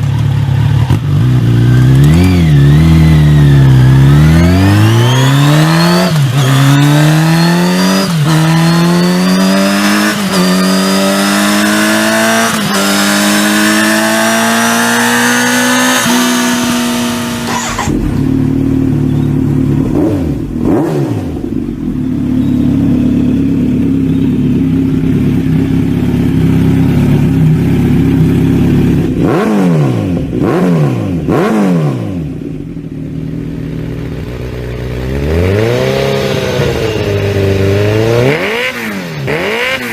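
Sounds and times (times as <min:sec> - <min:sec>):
motorcycle accelerating and shifting: 0:00.0 - 0:39.9
motorcycle throttle blips: 0:15.1 - 0:30.6.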